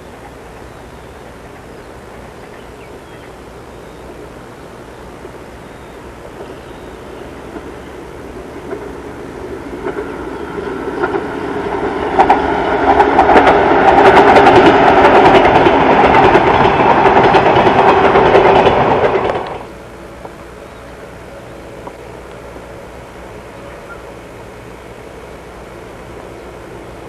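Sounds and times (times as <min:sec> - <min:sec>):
train rumbling past: 0:00.0 - 0:27.0
wheel clicks over rail joints: 0:12.2 - 0:19.7.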